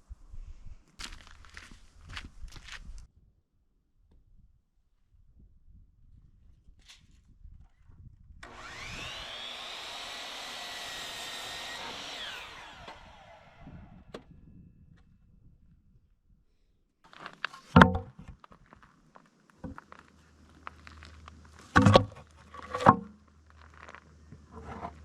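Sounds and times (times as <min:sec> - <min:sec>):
electric saw whining: 0:08.4 - 0:14.2
sharp wooden knocks: 0:17.7 - 0:18.3, 0:21.7 - 0:23.1.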